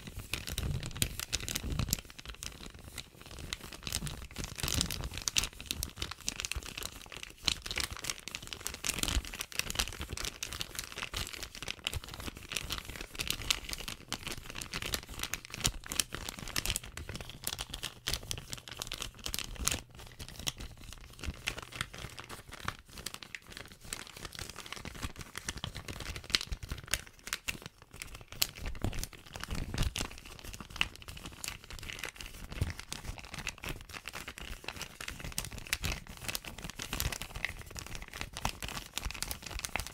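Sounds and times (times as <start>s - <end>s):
plastic bag crinkling: 0.0s - 39.9s.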